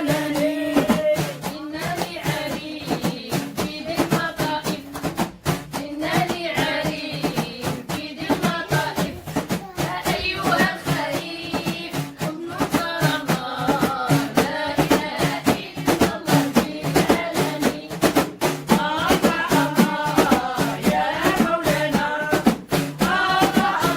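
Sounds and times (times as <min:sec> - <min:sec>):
voices chanting: 0:00.0 - 0:01.4, 0:18.8 - 0:23.9
hand drum strokes: 0:00.0 - 0:23.9.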